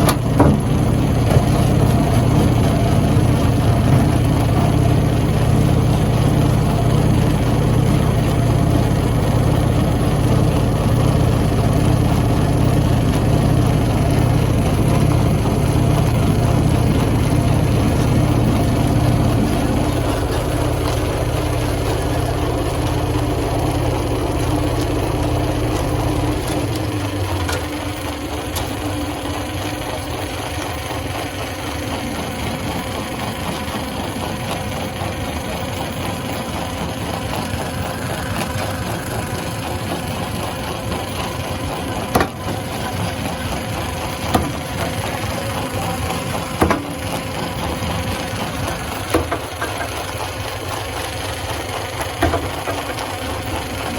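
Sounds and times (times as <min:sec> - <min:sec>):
stone crushing machine humming: 0:00.0 - 0:53.9
sharp knocks: 0:42.1 - 0:42.6.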